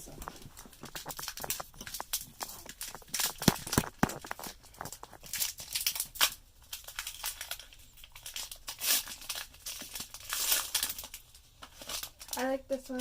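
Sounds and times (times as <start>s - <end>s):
foil wrapper tearing and crinkling: 0.0s - 13.0s.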